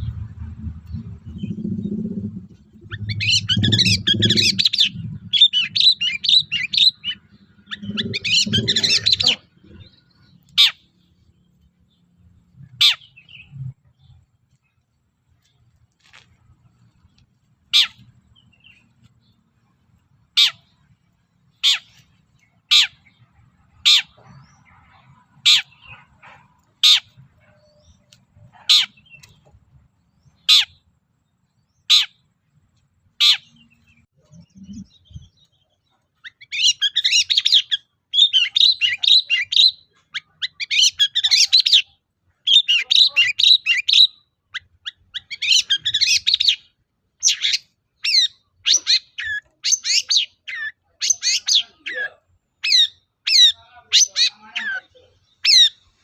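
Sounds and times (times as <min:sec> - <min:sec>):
bird chattering song: 0:00.0 - 0:14.8, 0:20.3 - 0:32.3, 0:33.2 - 0:56.0
bird harsh call notes: 0:02.8 - 0:10.9.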